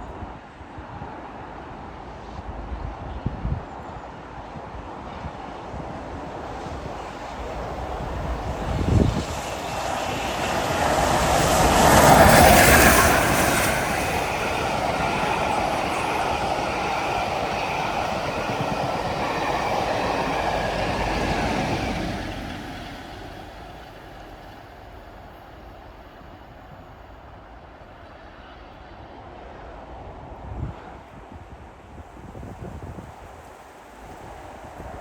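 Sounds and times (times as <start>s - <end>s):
steam locomotive passing: 0.0s - 35.0s
train wheel clatter: 6.2s - 25.3s
train wheel squeal: 6.3s - 26.4s.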